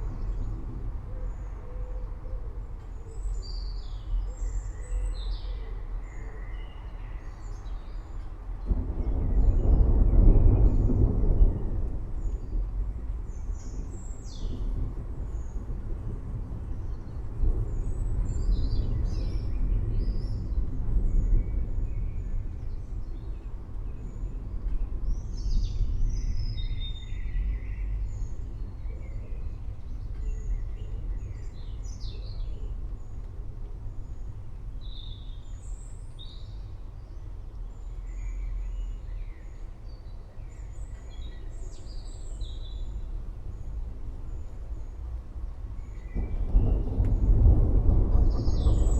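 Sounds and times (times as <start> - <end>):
distant thunder rumbling: 8.1 - 37.5, 41.9 - 48.9.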